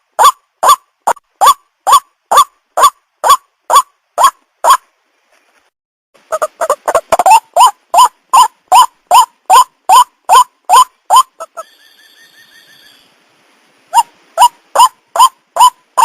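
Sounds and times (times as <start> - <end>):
waterhen calling: 6.2 - 13.2, 13.9 - 16.0.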